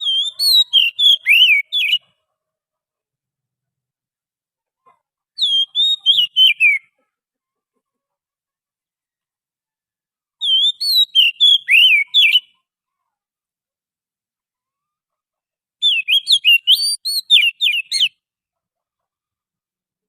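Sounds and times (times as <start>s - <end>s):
bird singing whistled notes: 0.0s - 2.0s, 5.4s - 6.9s, 10.4s - 12.6s, 15.8s - 18.2s.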